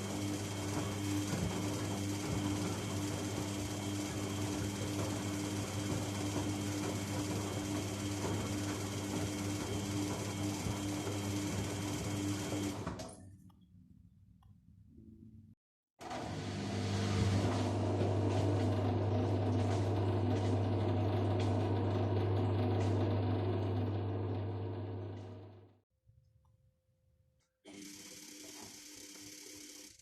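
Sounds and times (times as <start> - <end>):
washing machine motor humming: 0.0 - 13.2, 16.0 - 25.7.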